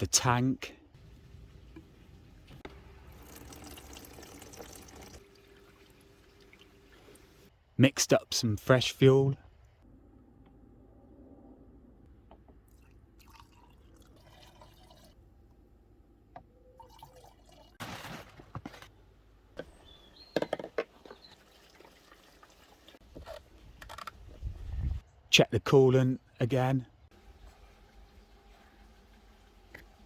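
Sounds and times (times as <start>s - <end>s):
handling clicks and knocks: 20.3s - 21.2s.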